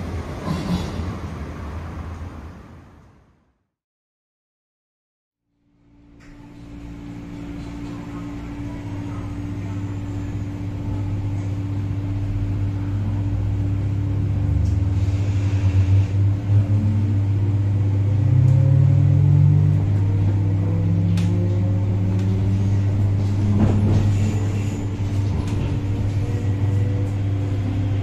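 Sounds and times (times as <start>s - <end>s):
train traction motors humming: 6.0s - 28.0s
rising motor whine: 13.4s - 23.6s.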